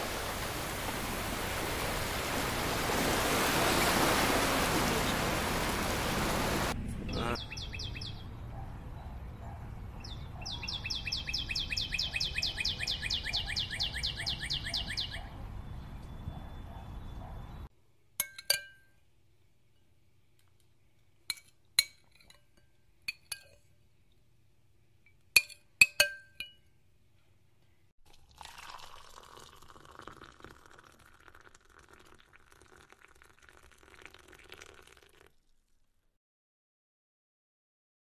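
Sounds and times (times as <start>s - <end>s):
glassware clinking: 18.2s - 19.0s, 21.3s - 23.7s, 25.1s - 26.7s.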